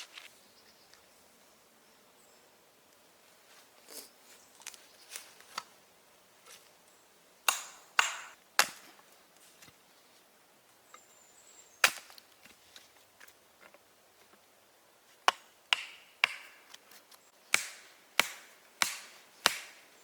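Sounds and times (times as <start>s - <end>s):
axe striking wood: 7.5s - 8.9s, 11.8s - 12.2s, 15.2s - 16.8s, 17.5s - 19.9s.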